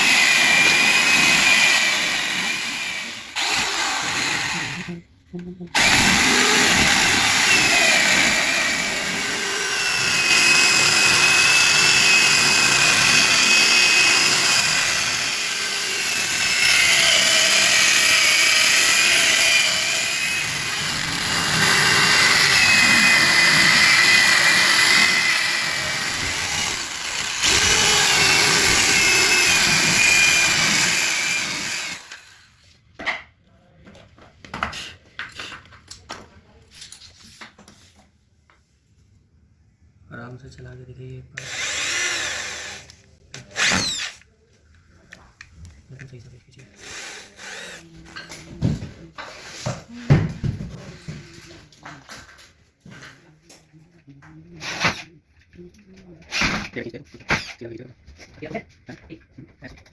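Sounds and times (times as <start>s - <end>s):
power tool whining on wood: 0.0s - 5.0s, 5.8s - 32.5s, 41.4s - 44.2s.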